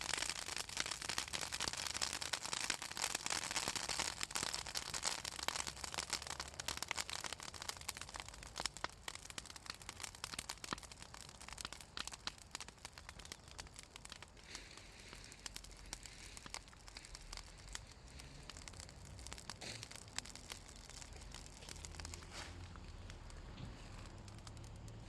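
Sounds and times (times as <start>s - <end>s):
branches crackling in a fire: 0.0s - 25.0s.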